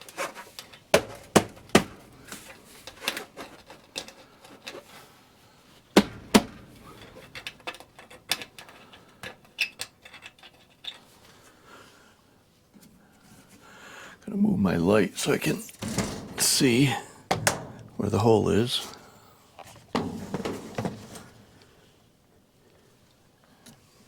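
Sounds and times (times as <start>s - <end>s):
sheet-metal pipe clicking and knocking: 6.0s - 10.6s, 17.3s - 18.0s.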